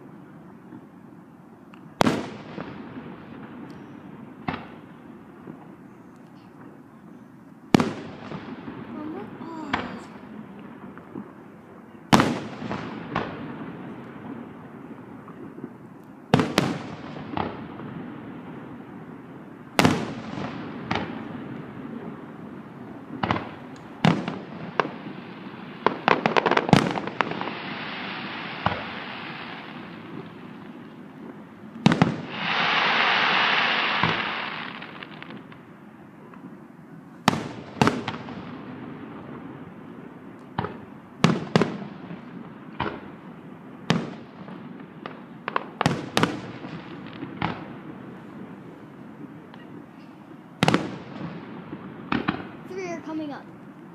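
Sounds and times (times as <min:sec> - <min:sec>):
fireworks crackling hiss: 0:00.0 - 0:53.9
fireworks bangs: 0:01.8 - 0:53.9
fireworks pops: 0:03.4 - 0:06.8, 0:07.7 - 0:11.4, 0:15.2 - 0:17.7, 0:19.8 - 0:21.3, 0:23.1 - 0:25.1, 0:25.8 - 0:36.6, 0:40.3 - 0:43.2, 0:43.9 - 0:48.4, 0:49.2 - 0:53.8.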